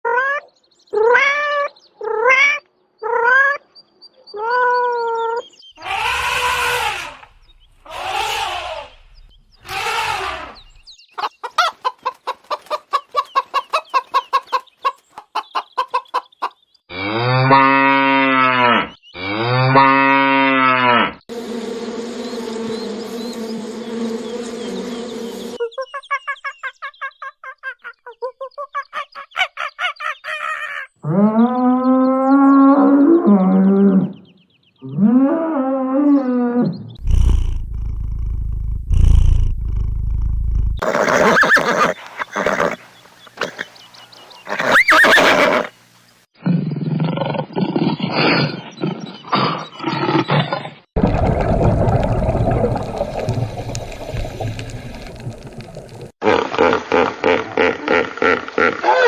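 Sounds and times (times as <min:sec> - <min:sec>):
fast animal chattering: 0:05.8 - 0:10.8, 0:37.0 - 0:42.8
short arched animal cries: 0:05.8 - 0:10.8
harsh animal calls: 0:05.8 - 0:10.9, 0:30.4 - 0:43.8
long low animal calls: 0:05.8 - 0:10.9, 0:34.8 - 0:42.8.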